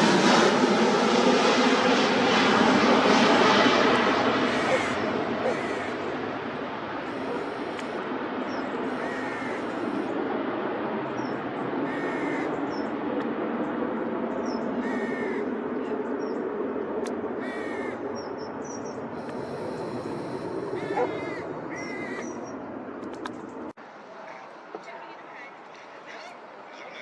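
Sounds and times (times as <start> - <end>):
distant aircraft engine rumble: 0.0 - 27.0
crows cawing: 4.4 - 6.2, 7.0 - 8.0, 8.9 - 10.1, 11.8 - 12.6, 14.8 - 15.6, 17.4 - 18.1, 20.3 - 22.4.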